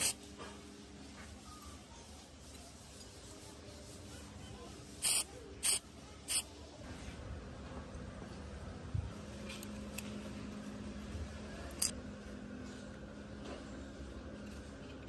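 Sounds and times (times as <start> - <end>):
hissing spray bursts: 4.9 - 6.5.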